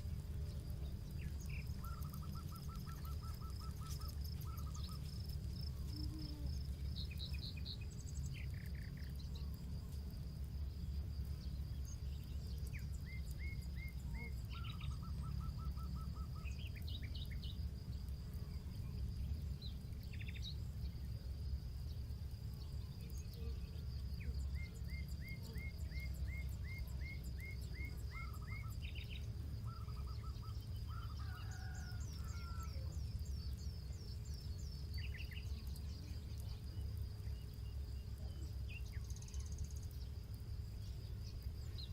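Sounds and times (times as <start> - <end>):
small birds singing: 0.0 - 9.8, 10.5 - 41.9
campfire crackling: 0.0 - 14.5.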